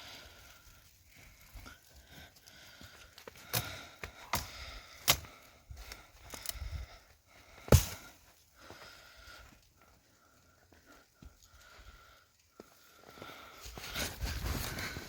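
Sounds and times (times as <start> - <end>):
axe chopping firewood: 3.5 - 5.4, 7.7 - 8.1.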